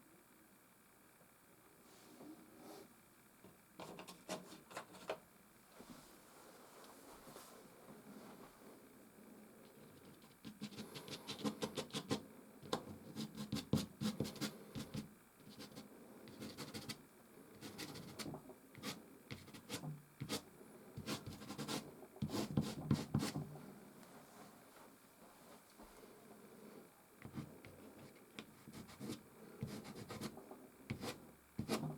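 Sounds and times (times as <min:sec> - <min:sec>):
pastel stick scratching canvas: 0:09.8 - 0:17.0, 0:17.6 - 0:20.4, 0:21.0 - 0:23.5, 0:27.2 - 0:31.9.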